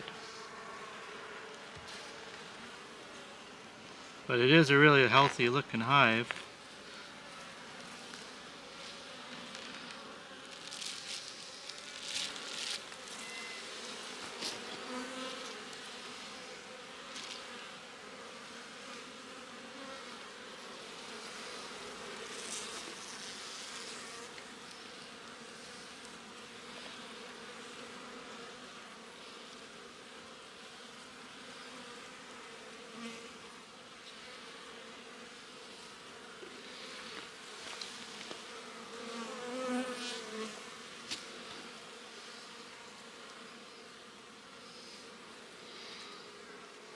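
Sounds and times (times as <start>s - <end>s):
bees buzzing: 4.3s - 20.0s, 34.6s - 46.9s.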